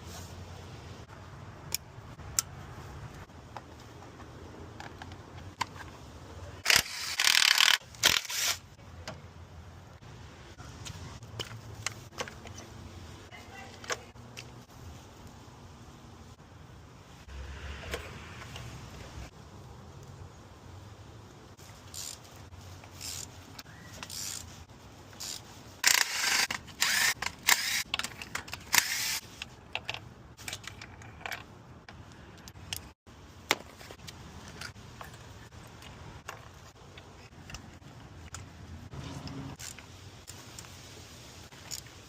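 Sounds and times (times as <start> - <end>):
hand tools clicking and clinking: 6.6 - 8.6, 21.8 - 38.6, 41.5 - 42.0.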